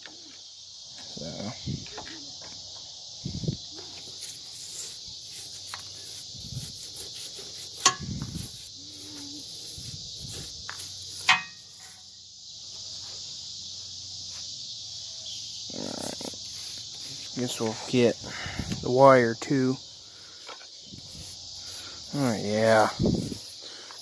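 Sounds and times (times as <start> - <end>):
high insect chorus: 0.0 - 24.0
handling and scrubbing noises: 3.8 - 12.1, 16.0 - 18.9.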